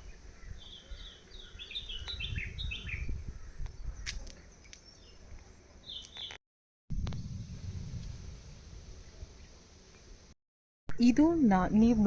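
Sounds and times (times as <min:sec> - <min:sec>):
birds chirping: 0:00.0 - 0:06.4
low rumble: 0:06.9 - 0:10.3.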